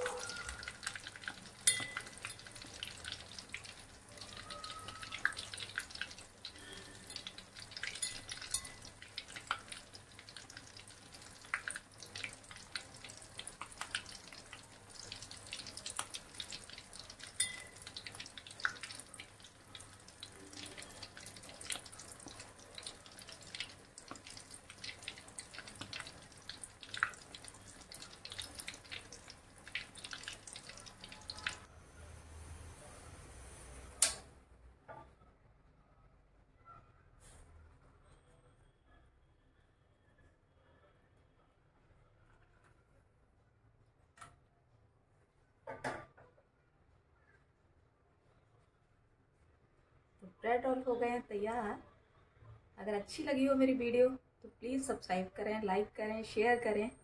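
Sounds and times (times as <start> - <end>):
bread deep-frying with crackling pops: 0.0 - 31.7, 33.7 - 34.3.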